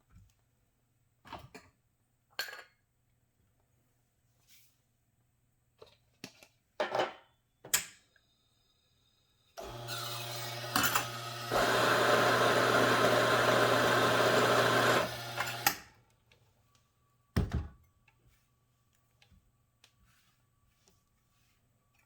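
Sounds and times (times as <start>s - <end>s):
espresso machine pump humming: 9.6s - 15.7s.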